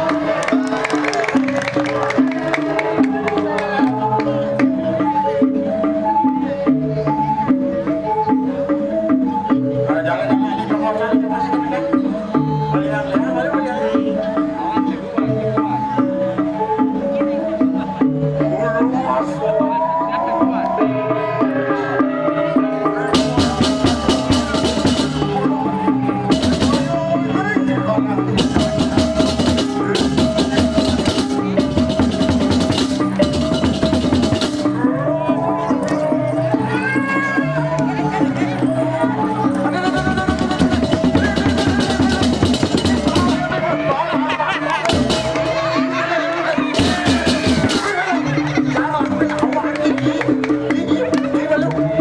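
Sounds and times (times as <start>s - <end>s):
drums: 22.1s - 36.8s, 39.3s - 51.4s
gamelan gongs melody: 23.1s - 25.5s, 28.4s - 34.8s.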